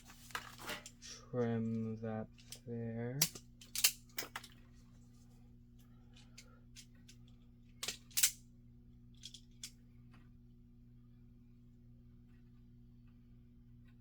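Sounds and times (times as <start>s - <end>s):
wire cutters snipping: 3.2s - 4.0s
wire cutters clicking: 3.2s - 4.5s.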